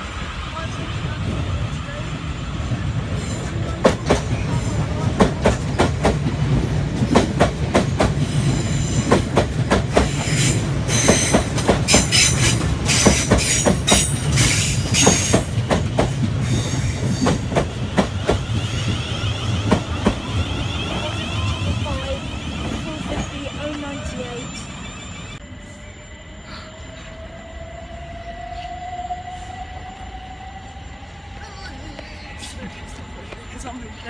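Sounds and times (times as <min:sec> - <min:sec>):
electric train rumbling past: 0:00.0 - 0:34.0
high wheel squeal: 0:10.0 - 0:34.0.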